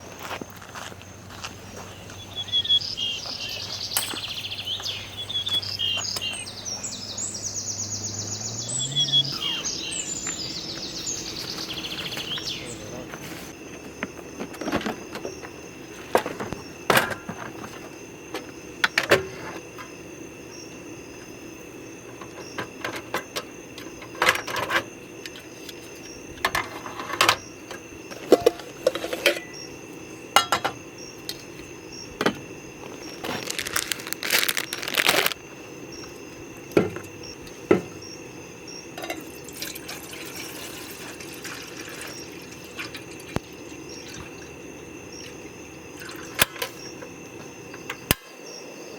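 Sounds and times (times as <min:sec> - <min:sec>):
high insect hum: 0:00.0 - 0:48.9
camp dishes clinking: 0:00.7 - 0:07.6, 0:08.9 - 0:20.1, 0:21.1 - 0:38.1, 0:38.8 - 0:44.6, 0:45.2 - 0:48.4
water pouring: 0:39.1 - 0:44.5.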